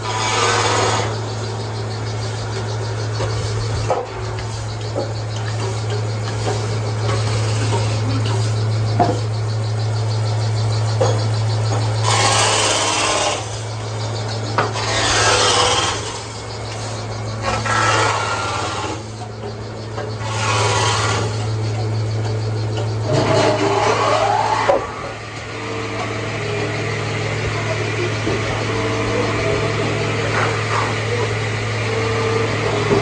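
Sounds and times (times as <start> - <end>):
wood being cut rasping: 0.0 - 8.6, 11.9 - 21.8
sawmill machinery humming: 0.0 - 33.0.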